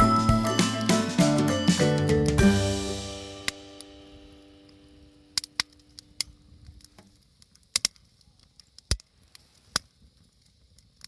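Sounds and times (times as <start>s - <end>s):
background music: 0.0s - 4.7s
sharp pops and cracks: 5.4s - 11.0s.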